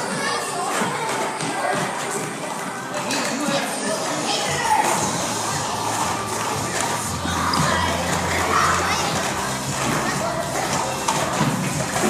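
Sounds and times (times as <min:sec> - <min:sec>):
babble of children's voices: 0:00.0 - 0:12.0
background music: 0:02.9 - 0:12.0.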